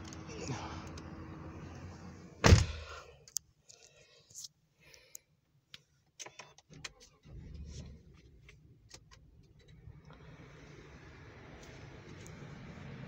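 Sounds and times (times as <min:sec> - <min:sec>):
engine starting and idling: 0:07.0 - 0:08.3.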